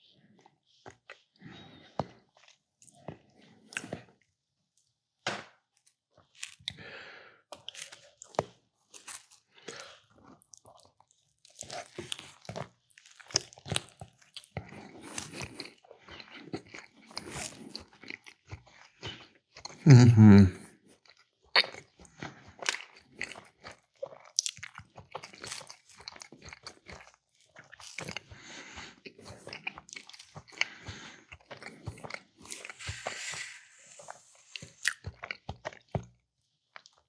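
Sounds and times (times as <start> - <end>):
person chewing crunchy food: 0.8 - 4.3, 5.8 - 6.8, 7.5 - 37.0.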